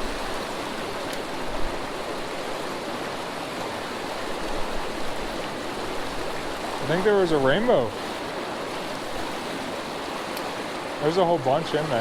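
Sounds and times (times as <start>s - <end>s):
creek flowing: 0.0s - 12.0s.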